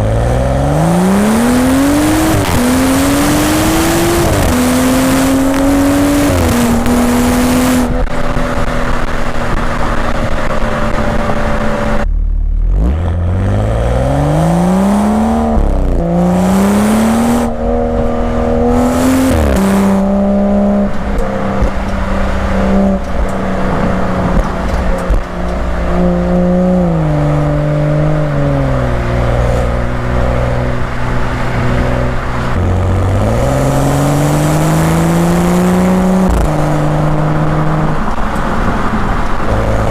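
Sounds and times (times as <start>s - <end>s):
car exhaust under hard acceleration: 0.0s - 39.9s.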